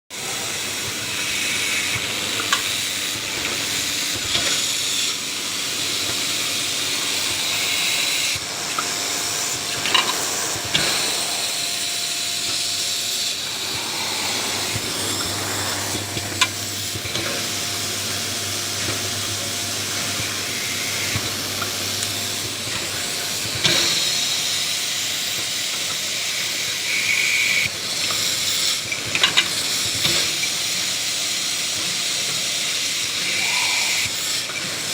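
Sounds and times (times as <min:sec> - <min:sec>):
drilling machine hissing: 0:00.2 - 0:28.5, 0:29.8 - 0:34.9
low motor hum: 0:13.2 - 0:19.9.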